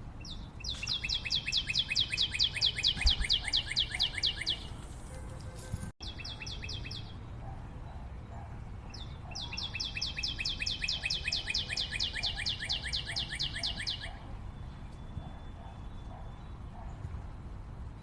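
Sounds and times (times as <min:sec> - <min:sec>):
bird singing fast trill: 0:00.0 - 0:04.8, 0:06.0 - 0:07.3, 0:08.8 - 0:17.0.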